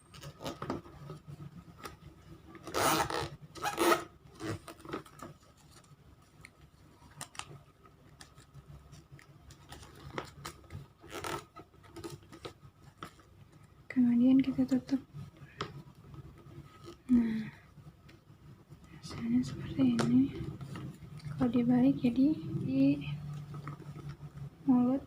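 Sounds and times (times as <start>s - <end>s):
paper crackling and tapping: 4.4s - 13.7s.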